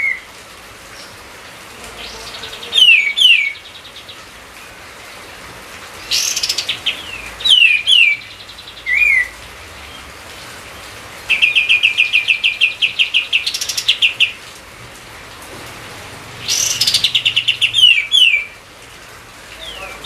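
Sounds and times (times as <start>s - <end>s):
songbird singing high chirps: 2.0s - 4.2s, 6.0s - 9.3s, 16.4s - 18.6s.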